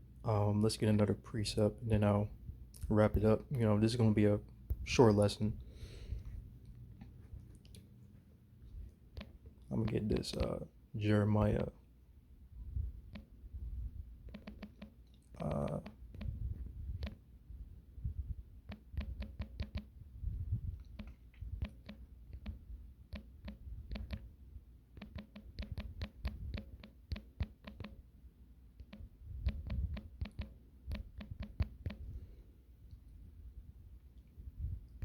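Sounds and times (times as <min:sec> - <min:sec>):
keyboard key clicks: 0:14.3 - 0:16.4, 0:18.7 - 0:19.9, 0:20.9 - 0:24.2, 0:25.0 - 0:28.0, 0:28.8 - 0:32.0.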